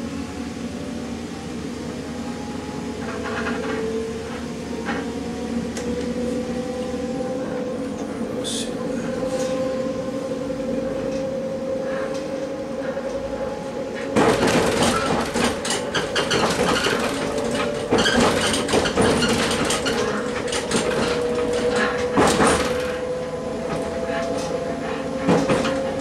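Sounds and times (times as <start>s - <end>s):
train engine whine: 0.0s - 26.0s
wheels clattering over track: 14.1s - 26.0s.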